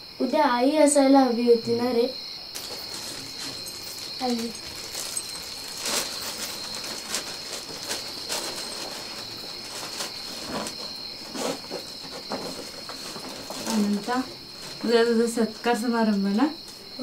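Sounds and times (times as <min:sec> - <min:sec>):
crickets chirring: 0:00.0 - 0:17.0
sharp clicks and rustles: 0:02.5 - 0:14.8.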